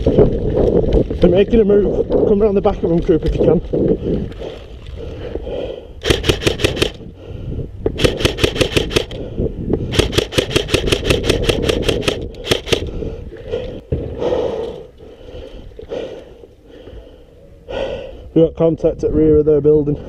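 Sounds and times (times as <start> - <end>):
airsoft rifle rapid shots: 6.0 - 7.0, 8.0 - 9.2, 9.9 - 12.8.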